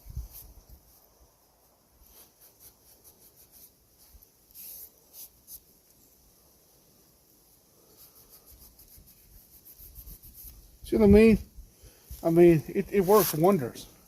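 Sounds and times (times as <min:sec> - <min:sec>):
wiping and rubbing metal: 0:08.1 - 0:10.7.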